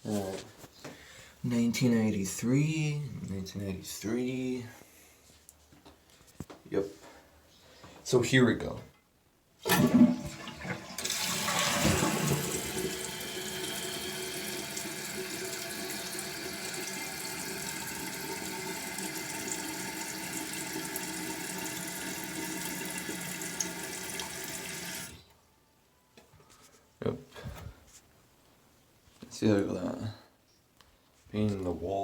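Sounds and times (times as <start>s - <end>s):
toilet flushing: 9.6s - 25.3s
toilet tank refilling hiss: 9.6s - 25.3s.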